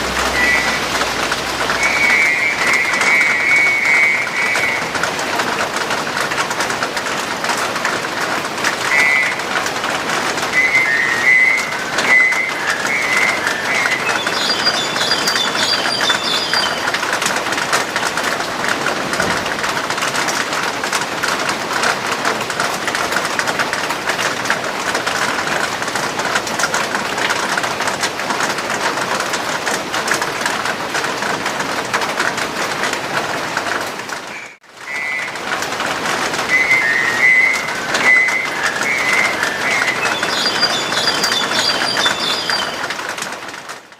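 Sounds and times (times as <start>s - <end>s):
starling calling: 0.0s - 5.2s, 8.7s - 9.6s, 10.3s - 17.2s, 34.3s - 35.6s, 36.3s - 43.0s
crackling background noise: 0.0s - 43.9s.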